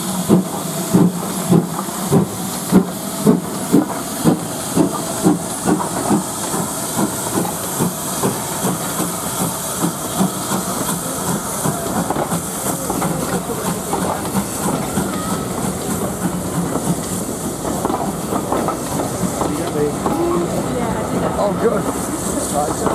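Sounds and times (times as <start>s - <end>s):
rolling stock clattering on rails: 0.0s - 22.9s
steam hissing: 0.0s - 22.9s
steam locomotive exhaust beats: 0.0s - 22.9s.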